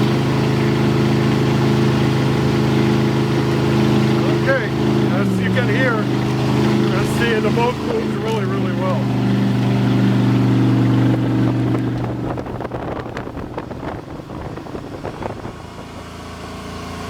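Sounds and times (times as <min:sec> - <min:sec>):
boat engine running: 0:00.0 - 0:17.0
water rushing past hull: 0:00.0 - 0:17.0
wind: 0:00.0 - 0:17.0.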